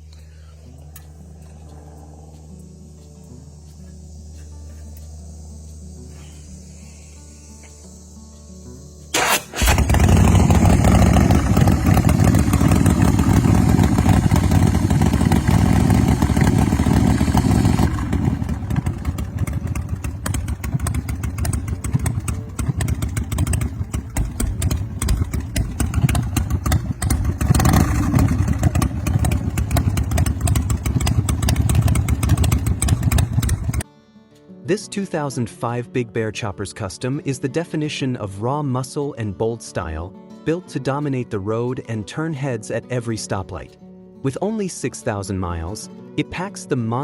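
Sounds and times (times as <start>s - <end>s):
motorcycle engine running loud: 9.2s - 33.8s.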